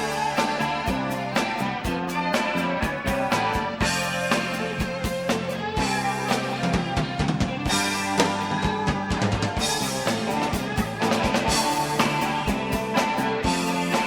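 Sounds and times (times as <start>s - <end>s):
bass guitar: 0.0s - 14.0s
drum kit steady beat: 0.0s - 14.0s
sustained guitar: 0.0s - 14.0s.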